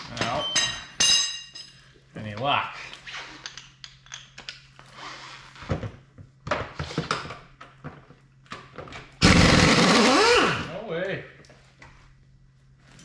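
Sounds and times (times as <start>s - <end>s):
metal tools clinking: 0.1s - 1.9s, 3.3s - 4.7s
rattling power tool: 9.2s - 10.7s.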